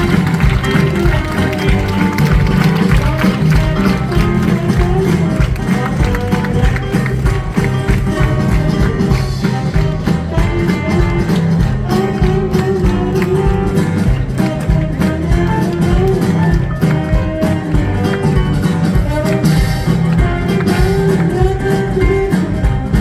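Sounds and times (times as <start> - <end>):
guitar: 0.0 - 23.0
live band music: 0.0 - 23.0
percussive beat: 0.0 - 23.0.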